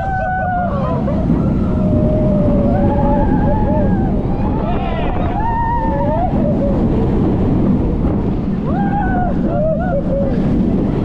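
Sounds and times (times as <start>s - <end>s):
riders screaming: 0.0s - 7.0s
wind rushing over microphone: 0.0s - 11.0s.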